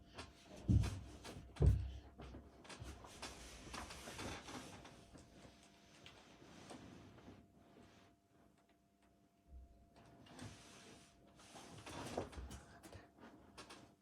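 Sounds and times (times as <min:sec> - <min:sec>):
rustling with small clicks: 0:02.3 - 0:06.9, 0:11.5 - 0:14.0.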